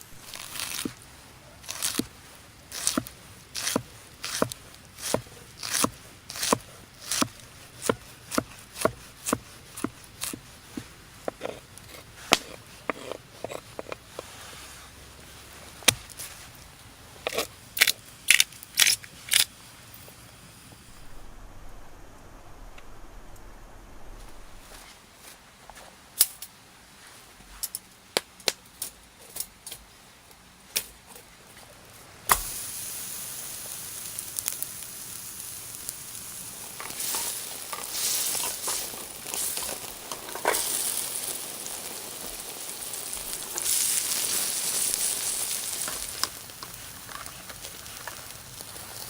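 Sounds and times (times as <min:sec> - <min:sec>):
meat sizzling over fire: 0:00.0 - 0:21.2, 0:31.8 - 0:49.0.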